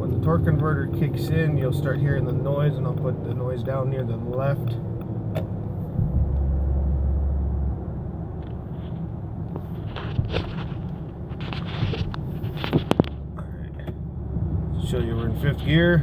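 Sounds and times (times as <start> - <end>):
vehicle interior rumble: 0.0 - 16.0
strong low drone: 4.7 - 9.4.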